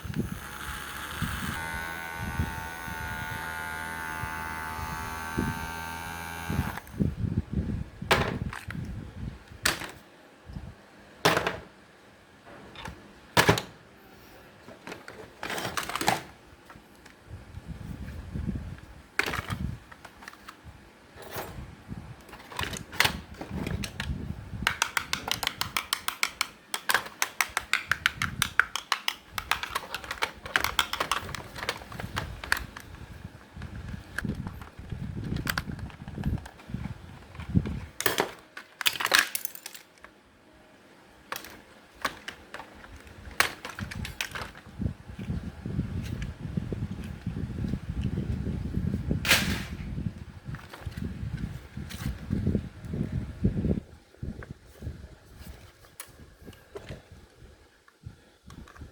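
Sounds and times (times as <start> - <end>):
fast clicking: 0.0 - 7.0, 24.7 - 31.5
plastic knocks and snaps: 24.7 - 32.6.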